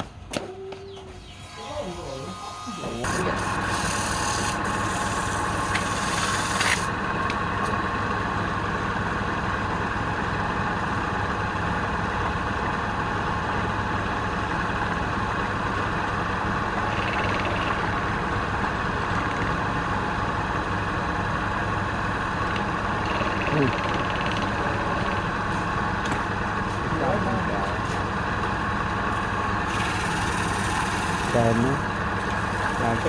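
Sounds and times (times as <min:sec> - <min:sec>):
tool scraping spinning wood: 0:01.1 - 0:07.0, 0:29.6 - 0:33.0
wood lathe running: 0:01.2 - 0:07.0, 0:29.5 - 0:33.0.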